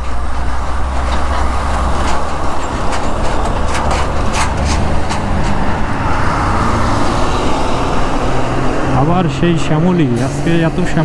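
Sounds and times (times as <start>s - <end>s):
motorcycle engine: 0.0s - 11.0s
truck and bus traffic: 0.0s - 11.0s
wind rushing over microphone: 1.6s - 10.8s.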